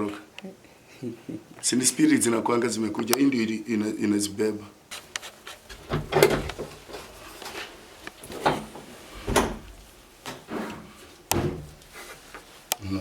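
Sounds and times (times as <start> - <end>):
rustling and scraping: 4.9 - 12.8
knocks and bumps: 5.6 - 12.5.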